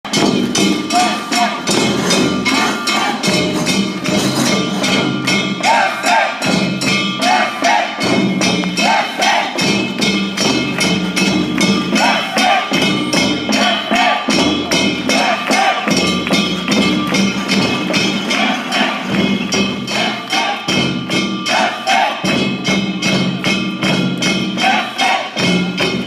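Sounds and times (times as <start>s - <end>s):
drums beating: 0.0s - 26.0s
ringing metal bell struck: 0.1s - 26.0s.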